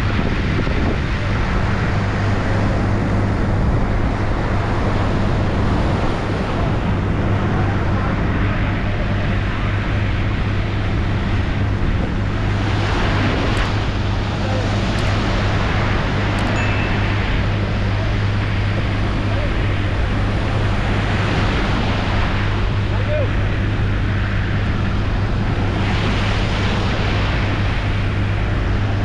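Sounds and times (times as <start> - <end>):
sea noise: 0.0 - 29.0
wind: 0.0 - 29.0
boat engine humming: 0.4 - 21.4.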